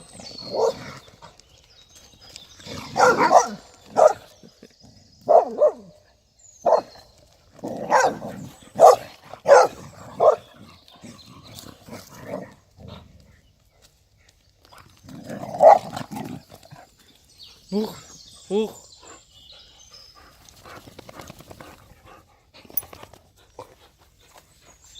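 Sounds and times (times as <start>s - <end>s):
dogs barking: 0.4s - 0.9s, 2.7s - 4.3s, 5.2s - 5.9s, 6.6s - 6.9s, 7.7s - 10.5s, 15.5s - 15.9s.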